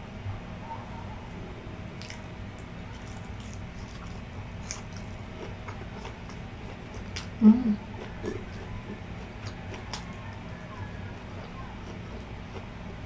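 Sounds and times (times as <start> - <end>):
wet chewing and mouth smacks: 1.9 - 10.8.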